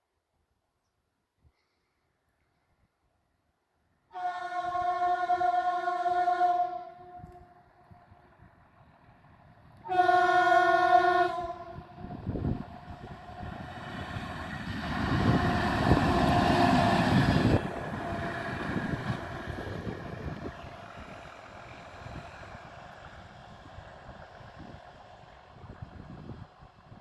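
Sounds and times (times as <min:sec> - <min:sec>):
train horn blast: 0:04.1 - 0:08.0, 0:09.8 - 0:13.6
train rumbling past: 0:04.2 - 0:27.0.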